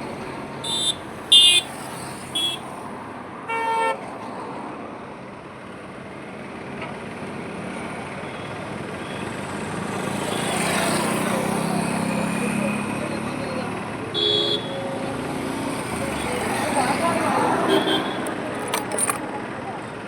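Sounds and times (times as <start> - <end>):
rumble of passing vehicles: 0.0 - 20.0
vehicle horns honking: 0.6 - 2.7, 3.5 - 4.0, 14.2 - 14.8, 17.6 - 18.9.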